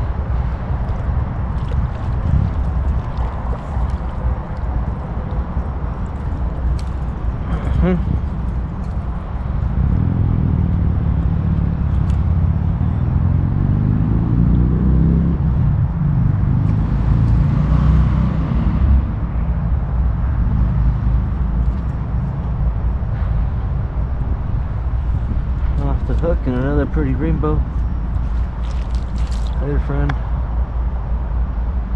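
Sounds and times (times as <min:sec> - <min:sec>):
heavy engine rumbling: 0:00.0 - 0:13.6.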